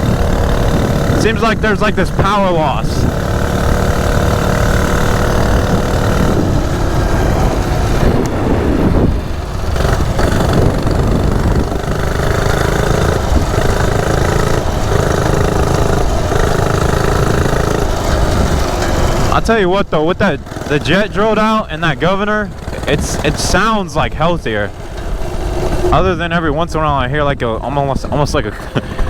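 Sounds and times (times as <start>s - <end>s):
minibike engine under throttle: 0.0s - 29.0s.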